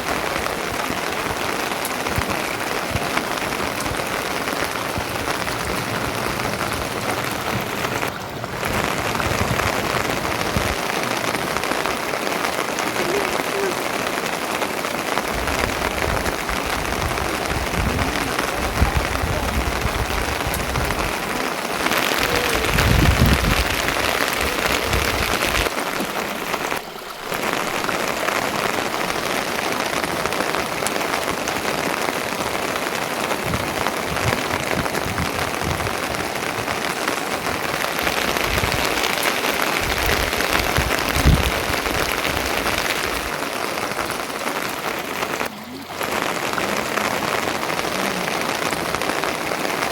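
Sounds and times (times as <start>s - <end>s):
steady rain falling: 0.0s - 49.9s
low rumbles: 15.3s - 25.8s.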